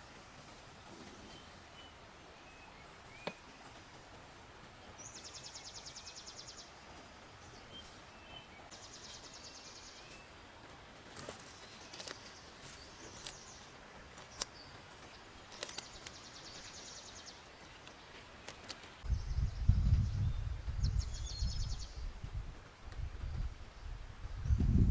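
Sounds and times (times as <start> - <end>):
running water hiss: 0.0 - 19.1.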